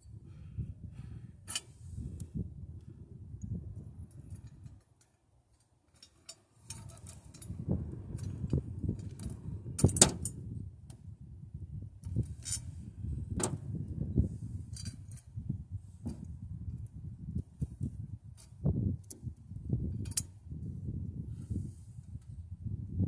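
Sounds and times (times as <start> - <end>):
wind buffeting microphone: 0.0 - 4.8, 6.7 - 23.0
metal tools clinking: 5.9 - 8.5.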